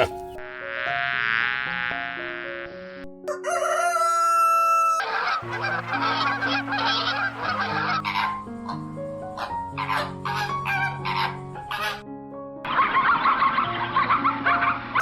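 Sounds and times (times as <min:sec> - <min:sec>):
background music: 0:00.0 - 0:15.0
fowl long calls: 0:03.3 - 0:08.3
fowl clucking and chatter: 0:03.4 - 0:08.4.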